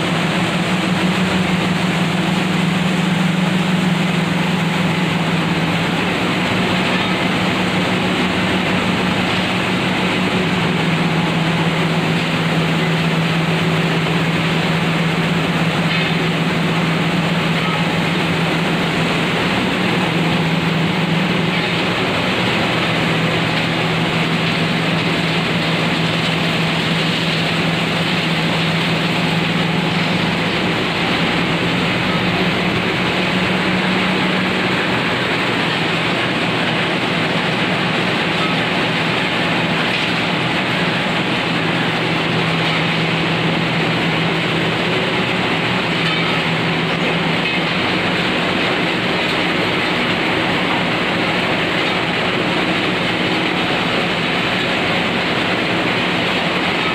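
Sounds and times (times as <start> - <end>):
grinding machine running: 0.0 - 56.9.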